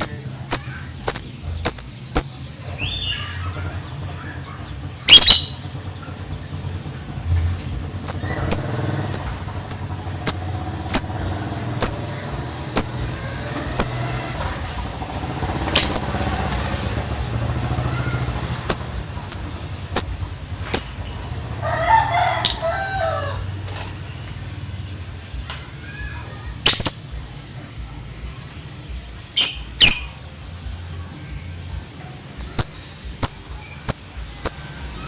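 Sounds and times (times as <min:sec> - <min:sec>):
lovebird chirping song: 0:00.0 - 0:14.2, 0:15.0 - 0:21.6, 0:22.4 - 0:35.0.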